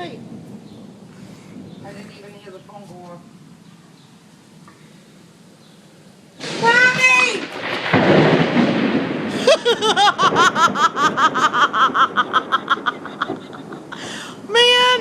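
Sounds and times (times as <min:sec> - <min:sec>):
thunder clap rolling: 0:00.0 - 0:02.6, 0:06.4 - 0:15.0
rapid high-pitched laughter: 0:09.5 - 0:14.0
woman screaming: 0:14.5 - 0:15.0.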